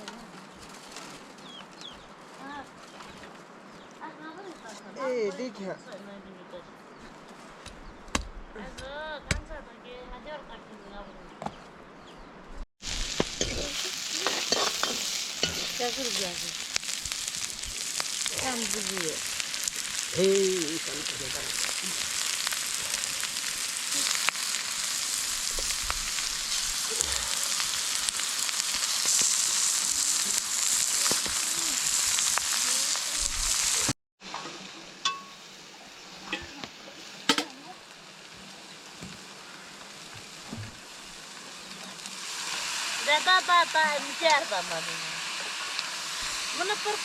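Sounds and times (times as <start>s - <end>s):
food sizzling in hot oil: 12.8s - 47.0s
stirring: 13.4s - 18.6s.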